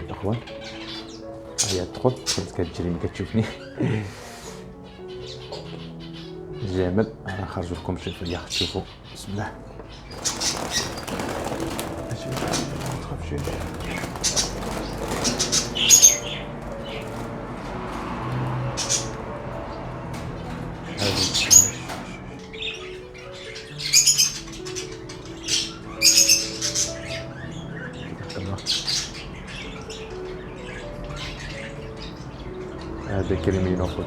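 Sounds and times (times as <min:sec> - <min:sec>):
cockatiels squawking: 0:00.0 - 0:17.3, 0:18.5 - 0:33.6
wings flapping: 0:09.6 - 0:27.2.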